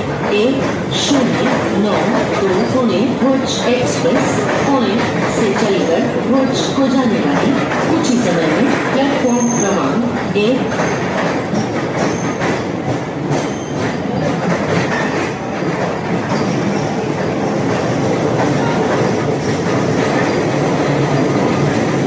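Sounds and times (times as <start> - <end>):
train rumble: 0.0 - 22.0
train wheels clattering on rail joints: 0.0 - 22.0.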